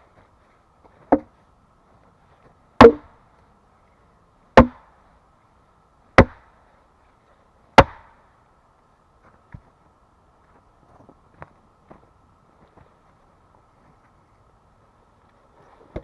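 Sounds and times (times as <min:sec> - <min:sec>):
axe chopping wood: 0:02.8 - 0:03.2, 0:04.6 - 0:04.9, 0:06.2 - 0:06.4, 0:07.8 - 0:08.1.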